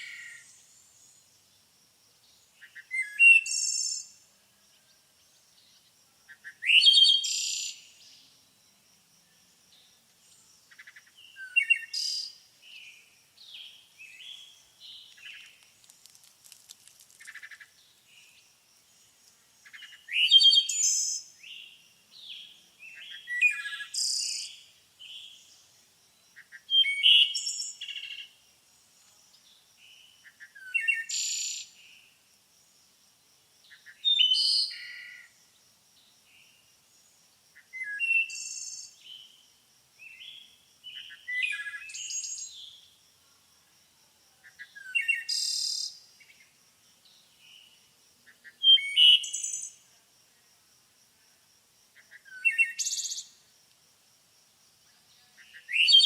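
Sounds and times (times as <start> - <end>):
songbirds chirping and trilling: 0.0 - 8.5, 9.3 - 32.1, 54.8 - 56.0
quiet bird twittering: 9.7 - 16.2.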